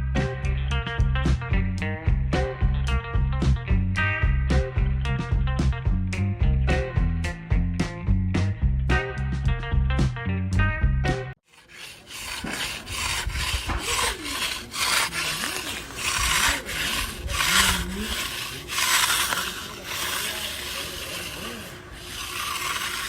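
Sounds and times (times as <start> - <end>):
uneven scraping strokes: 11.4 - 23.0.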